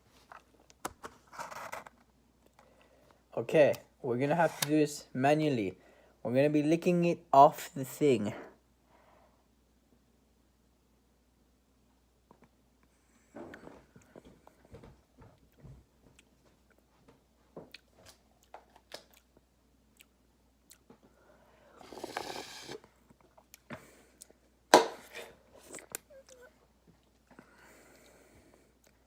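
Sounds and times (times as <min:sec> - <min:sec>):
licking and slurping: 0:21.8 - 0:23.6.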